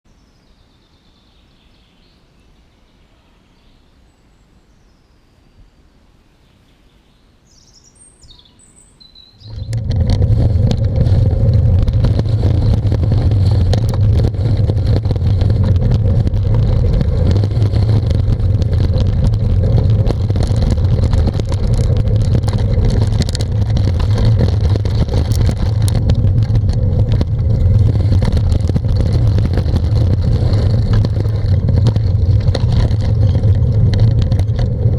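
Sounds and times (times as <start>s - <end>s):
faint bird chirps: 0.1s - 9.6s
wind and bicycle rolling noise: 8.2s - 34.9s.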